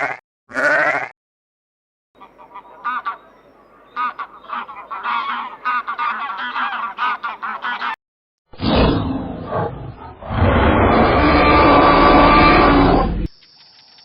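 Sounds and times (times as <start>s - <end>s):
flock of birds calling: 2.2s - 8.0s.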